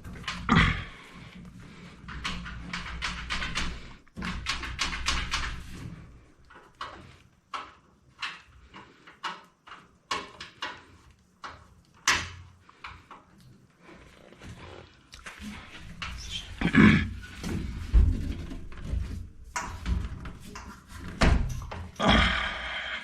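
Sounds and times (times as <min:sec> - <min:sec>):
sharp clicks and knocks: 0:00.0 - 0:13.5, 0:17.4 - 0:22.0.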